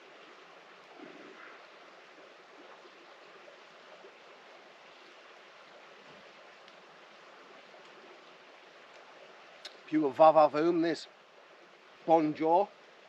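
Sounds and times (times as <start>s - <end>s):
faint outdoor hiss: 0.0s - 13.0s
faint ticks: 6.1s - 6.9s, 7.8s - 8.0s, 8.8s - 9.9s.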